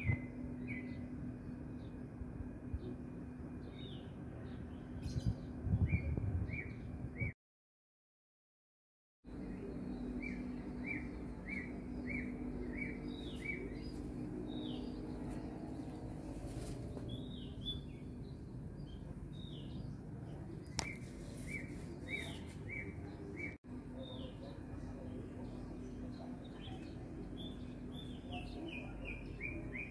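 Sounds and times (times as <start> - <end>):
low steady hum: 0.0 - 7.4, 9.3 - 29.9
sharp click: 20.7 - 21.0.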